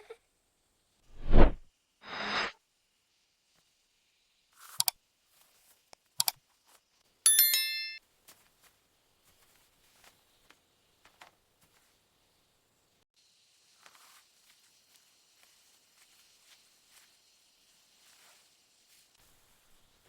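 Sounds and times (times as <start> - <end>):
bright bell-like ring: 7.3 - 8.0.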